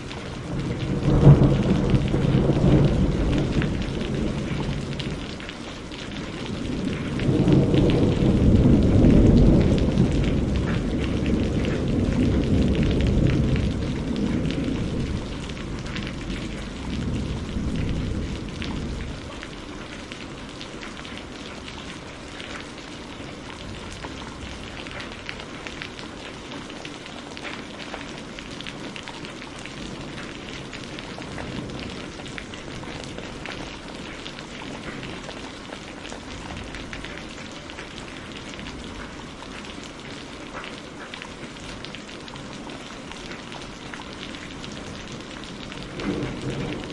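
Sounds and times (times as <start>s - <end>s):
rain drops ticking: 0.0s - 46.9s
low thunder roll: 0.2s - 5.5s, 6.1s - 19.6s, 44.5s - 46.9s.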